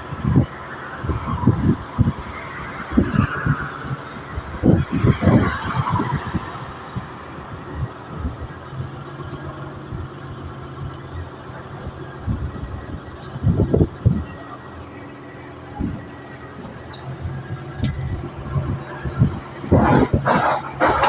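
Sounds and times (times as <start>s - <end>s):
heavy machine engine running: 0.0s - 21.0s.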